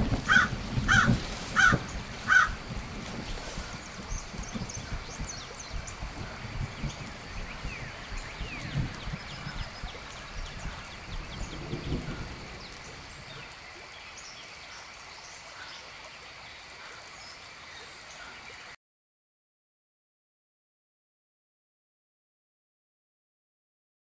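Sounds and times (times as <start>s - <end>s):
low rumbling: 0.0s - 13.6s
steady rain: 0.0s - 18.8s.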